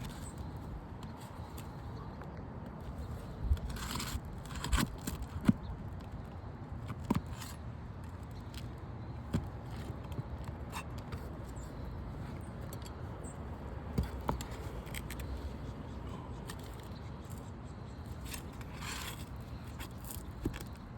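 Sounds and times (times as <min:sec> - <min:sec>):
pry bar tapping on roof shingles: 0:02.8 - 0:17.4, 0:18.1 - 0:20.9.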